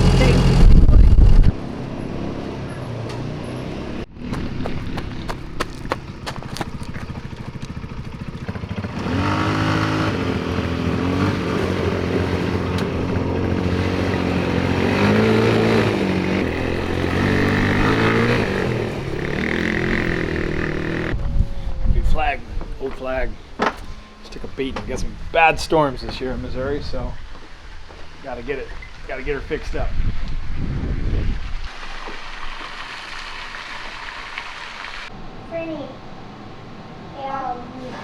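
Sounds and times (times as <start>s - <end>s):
vehicle engine running: 0.0s - 28.5s.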